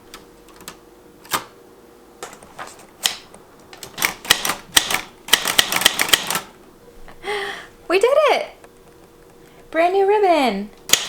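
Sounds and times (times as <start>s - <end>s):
typewriter keys clacking: 3.8s - 6.5s.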